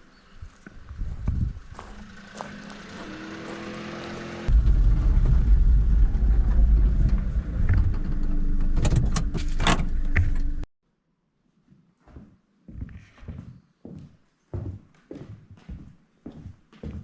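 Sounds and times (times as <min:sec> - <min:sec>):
motor vehicle rumbling: 0:00.6 - 0:10.7.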